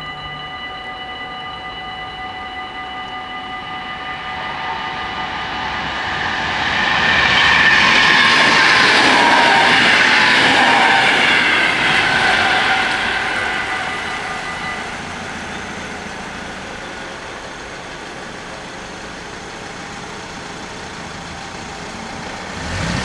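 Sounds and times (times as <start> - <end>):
electric train pulling away: 0.0 - 23.0
car engine moving off: 5.7 - 23.0.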